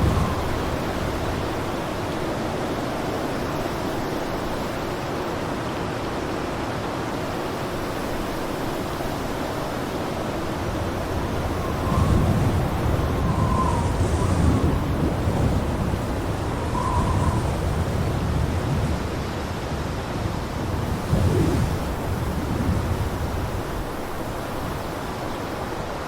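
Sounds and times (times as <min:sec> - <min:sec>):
wind gust with deep rumble: 0:00.0 - 0:03.7, 0:09.1 - 0:25.2
blizzard wind rushing: 0:00.0 - 0:05.4, 0:07.2 - 0:26.0.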